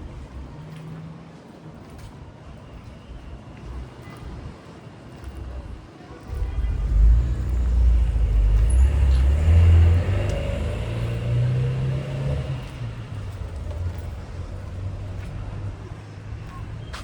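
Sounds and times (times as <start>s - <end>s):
car passing by: 6.2s - 15.7s.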